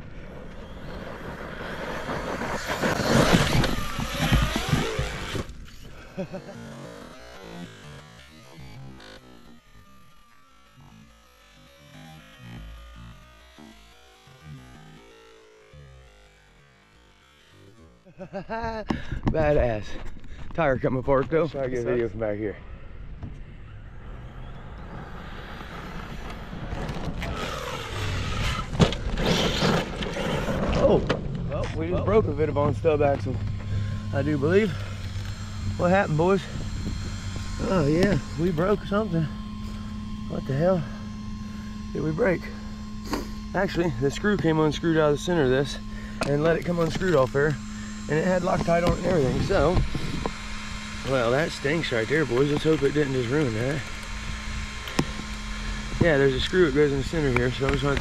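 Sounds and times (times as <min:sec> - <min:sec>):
electric motor whining: 0:00.0 - 0:58.0
tyres on dirt: 0:00.4 - 0:08.3, 0:25.5 - 0:40.8.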